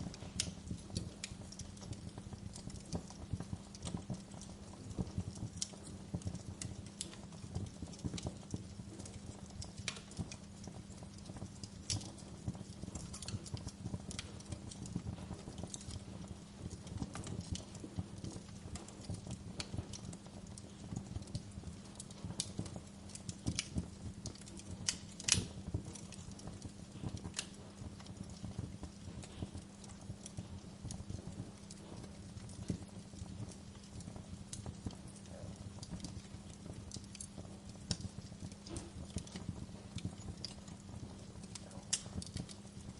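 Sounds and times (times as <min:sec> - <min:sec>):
gentle rain hiss: 0:00.0 - 0:42.9
wood fire crackling: 0:00.0 - 0:42.9.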